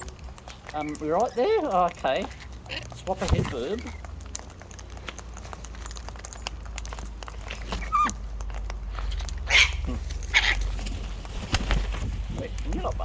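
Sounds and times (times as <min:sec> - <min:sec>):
beaks and claws clicking: 0:00.0 - 0:13.0.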